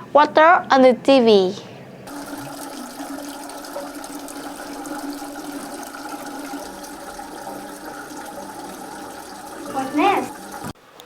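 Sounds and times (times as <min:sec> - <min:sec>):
waterfall rushing: 0:02.1 - 0:10.7.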